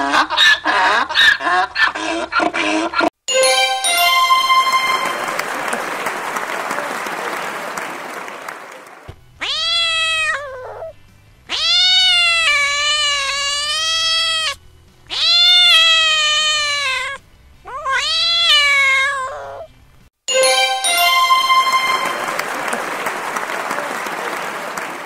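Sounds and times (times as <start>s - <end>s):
cat meowing: 9.4s - 10.9s, 11.5s - 19.7s.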